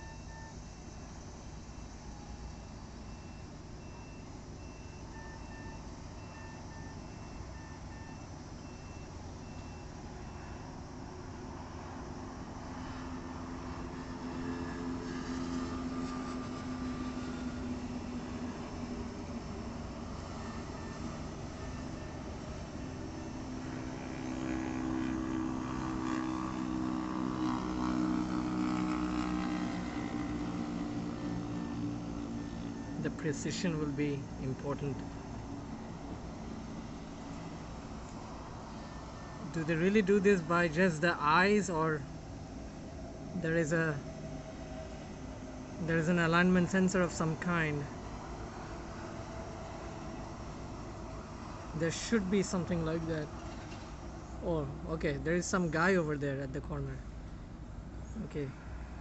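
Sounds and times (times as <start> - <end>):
high warning beeps: 0.0 - 0.8, 1.7 - 10.8, 20.1 - 23.5
lower beeps in pairs: 0.0 - 0.8, 1.7 - 10.8
heavy engine humming: 0.0 - 59.0.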